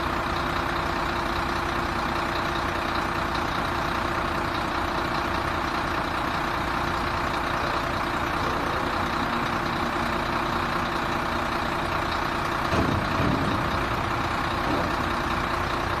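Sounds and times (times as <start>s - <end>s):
diesel truck engine running: 0.0s - 16.0s
low thump: 12.7s - 13.7s.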